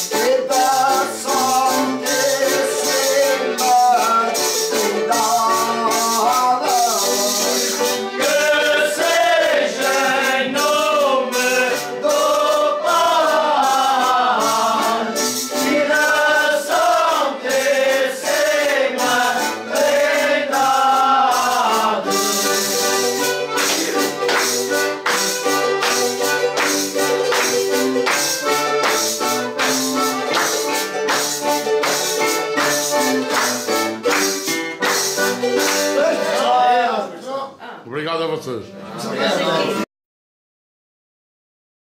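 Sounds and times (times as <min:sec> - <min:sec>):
men singing together: 0:00.0 - 0:24.5, 0:35.8 - 0:37.1
tambourine beating: 0:00.0 - 0:36.2
strummed guitar: 0:00.0 - 0:36.9
accordion: 0:00.0 - 0:37.1
hands clapping: 0:21.3 - 0:36.4.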